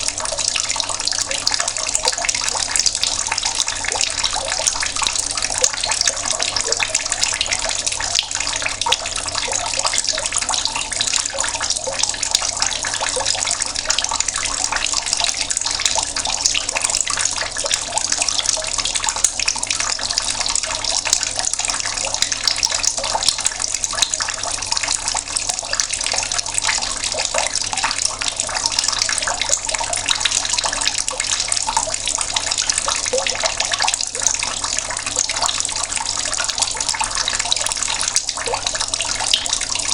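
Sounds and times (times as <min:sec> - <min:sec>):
tap water splashing: 0:00.0 - 0:39.9.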